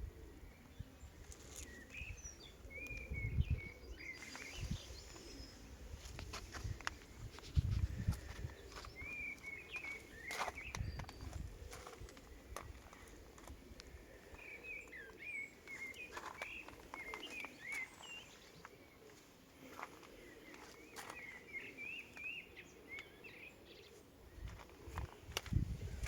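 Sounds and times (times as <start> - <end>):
outdoor background noise: 0.0 - 26.0
songbird twittering: 1.5 - 5.7, 8.0 - 11.5, 14.3 - 18.7.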